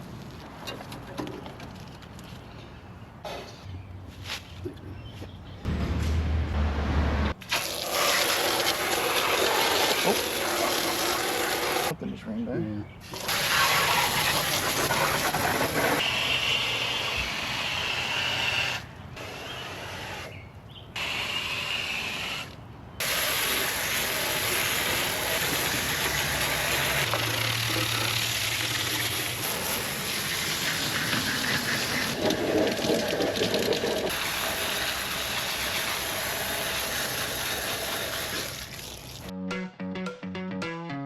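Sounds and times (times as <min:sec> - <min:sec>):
hose water spraying hiss: 0:13.1 - 0:16.4, 0:23.0 - 0:32.2
music: 0:39.3 - 0:41.0.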